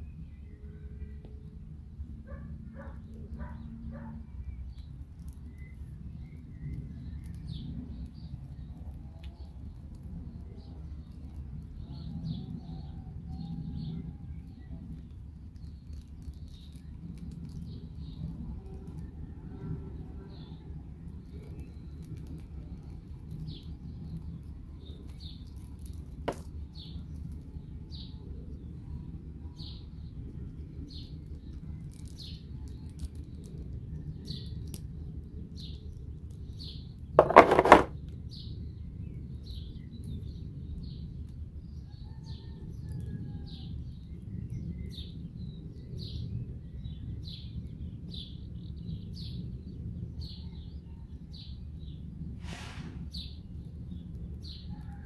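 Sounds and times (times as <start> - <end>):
clatter: 37.2 - 37.9.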